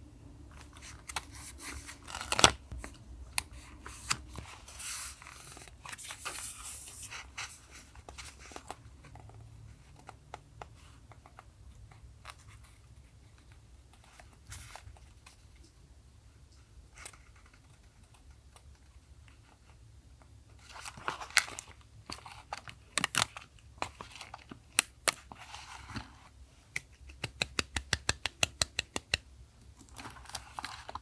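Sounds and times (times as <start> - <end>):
paper rustling: 0.6 - 2.9, 3.5 - 8.8, 29.8 - 31.0.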